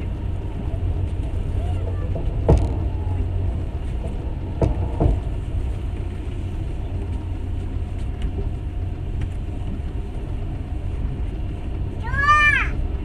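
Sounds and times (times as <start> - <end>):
train carriage rumbling: 0.0 - 13.0
sharp knocks: 2.3 - 3.3, 3.9 - 5.4.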